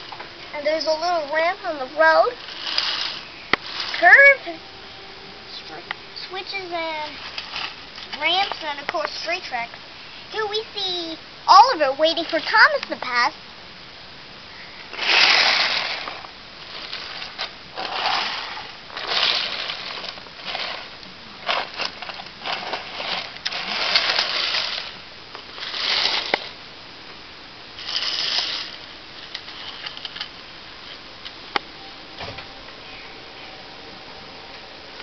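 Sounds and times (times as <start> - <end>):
toy train rolling on plastic track: 2.0 - 4.2, 15.0 - 25.0, 25.6 - 26.5, 27.8 - 30.3.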